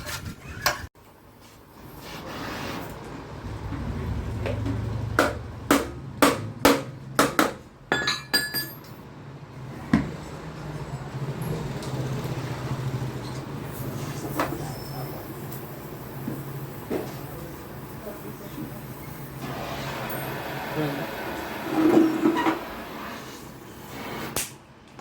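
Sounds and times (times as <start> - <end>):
hammer striking metal: 5.2 - 9.0.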